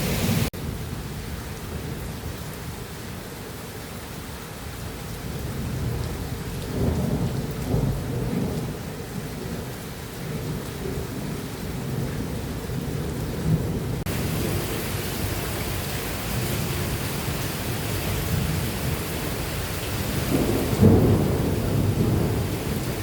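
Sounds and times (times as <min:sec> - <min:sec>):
heavy rain pouring: 0:00.0 - 0:23.0
low rumbling thunder: 0:05.4 - 0:23.0.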